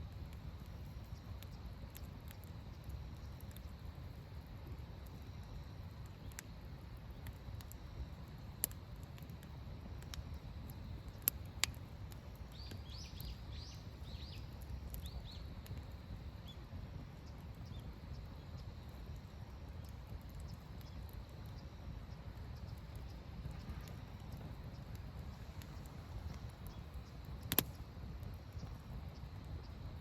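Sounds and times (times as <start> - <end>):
steady low rumble: 0.0 - 30.0
sharp snaps: 27.4 - 28.7.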